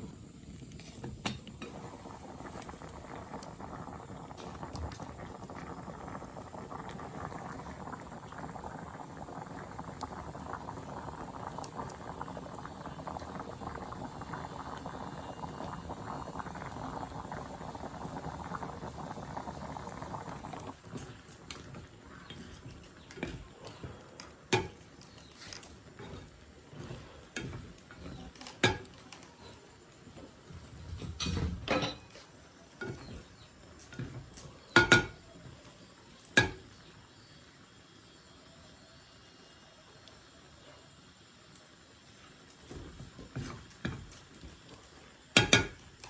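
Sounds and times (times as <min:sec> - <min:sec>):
liquid boiling and bubbling: 0:00.0 - 0:46.0.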